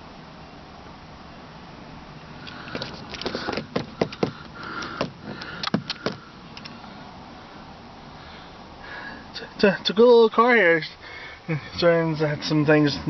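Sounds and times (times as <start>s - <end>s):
rustling: 2.4s - 6.3s
sharp clicks and knocks: 2.5s - 6.8s.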